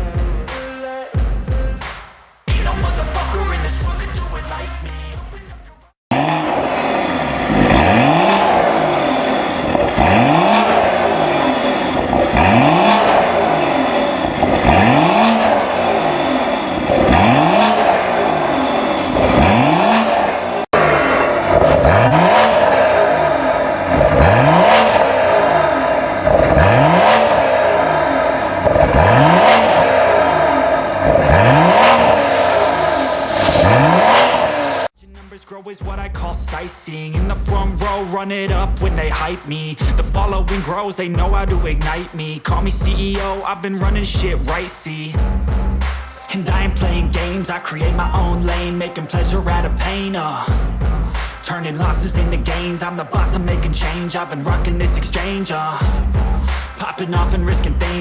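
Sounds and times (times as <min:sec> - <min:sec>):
car engine revving: 0:06.1 - 0:35.0, 0:37.4 - 0:58.0.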